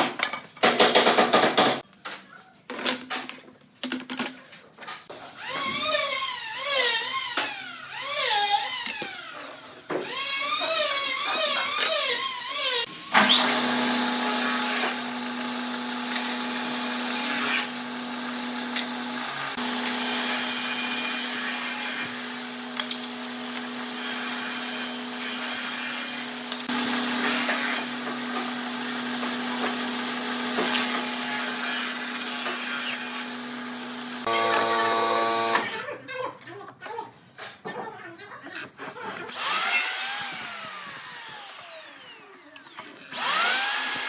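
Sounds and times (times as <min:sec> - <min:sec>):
power tool cutting wood: 0:05.4 - 0:35.8, 0:39.3 - 0:44.0.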